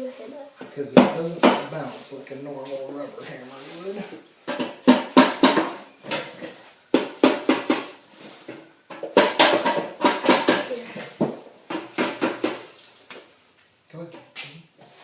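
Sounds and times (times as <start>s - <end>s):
hammer knocking on metal cover: 4.5s - 5.8s, 6.9s - 7.9s, 8.9s - 10.7s.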